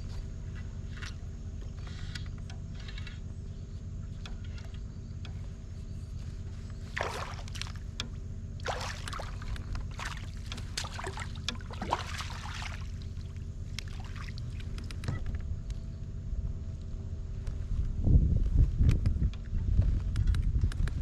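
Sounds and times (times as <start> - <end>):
steady low rumble: 0.0 - 21.0
water splashing beside a kayak: 6.8 - 14.8.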